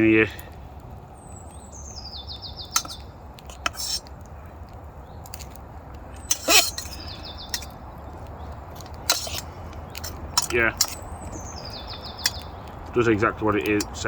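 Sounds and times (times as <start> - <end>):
songbird singing: 0.0 - 14.0
camping kit rustling clatter: 8.7 - 14.0.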